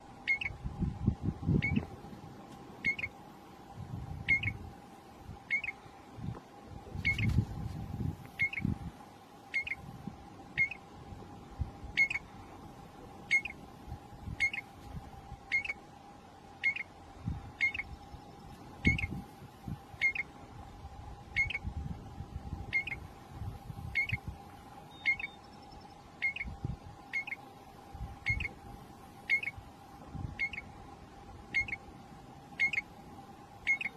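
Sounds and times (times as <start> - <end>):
constant hum: 0.0 - 33.9
bird call note: 2.8 - 3.2, 24.9 - 25.5, 33.6 - 33.9.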